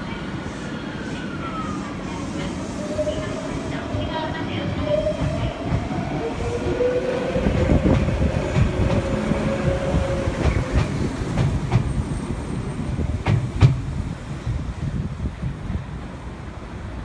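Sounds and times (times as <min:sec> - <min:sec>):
train wheels clacking over rail joints: 0:13.2 - 0:13.9.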